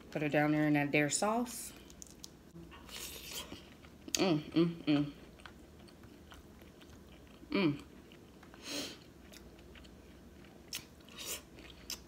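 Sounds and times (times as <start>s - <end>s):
woman chewing food: 1.8s - 12.0s
woman humming: 4.1s - 5.2s, 7.5s - 7.9s.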